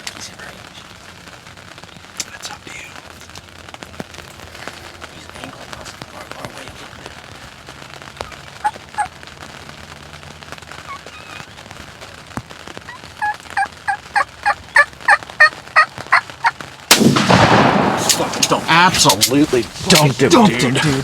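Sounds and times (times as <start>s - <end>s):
turkey yelps: 8.1s - 9.2s, 10.7s - 16.6s
loud shotgun shot: 16.9s - 20.2s.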